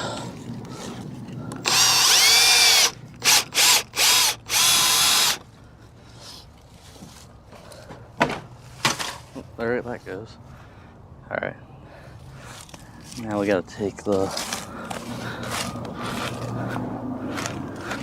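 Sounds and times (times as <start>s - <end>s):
power drill driving a screw: 1.6s - 5.4s.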